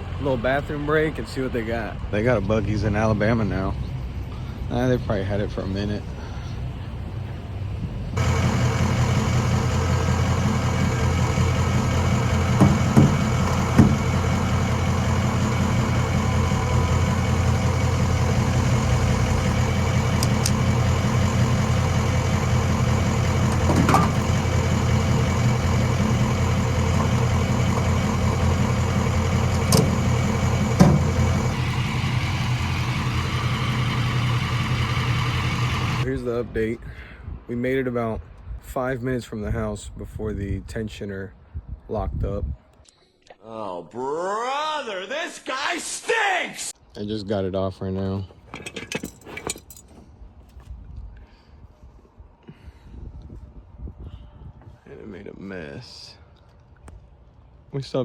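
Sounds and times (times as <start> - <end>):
diesel truck engine running: 0.0 - 36.1
sharp clicks: 20.1 - 20.8.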